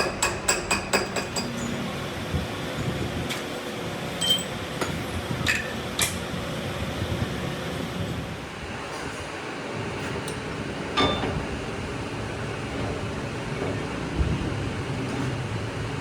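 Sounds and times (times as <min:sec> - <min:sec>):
steady mechanical hum: 0:00.0 - 0:16.0
metallic clinks of steel tools: 0:04.2 - 0:04.5.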